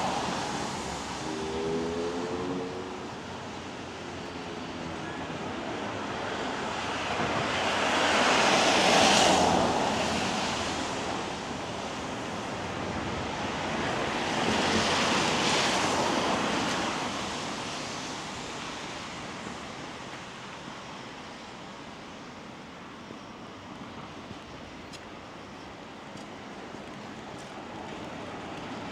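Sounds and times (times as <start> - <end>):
tyres hissing on wet road: 0.0 - 4.8.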